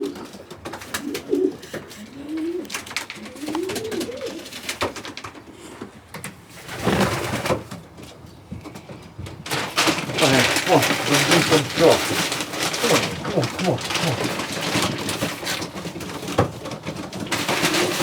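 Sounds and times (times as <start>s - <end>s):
pigeons cooing: 0.0s - 5.8s, 8.7s - 18.0s
clicks and scratches: 9.5s - 18.0s
rustling: 9.5s - 18.0s.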